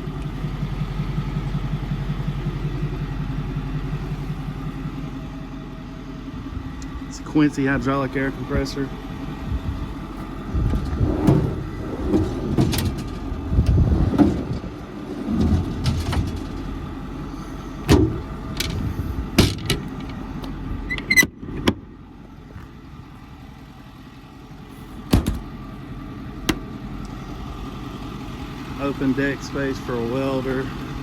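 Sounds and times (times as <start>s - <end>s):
diesel engine idling: 0.0s - 31.0s
sharp knocks and clunks: 17.9s - 18.8s, 19.4s - 20.2s, 25.1s - 25.5s.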